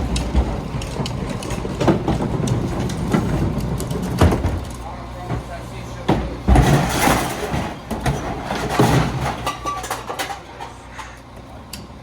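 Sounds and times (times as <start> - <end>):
garbage truck engine running: 0.0 - 12.0
loud metal clanks and bangs: 5.4 - 10.8.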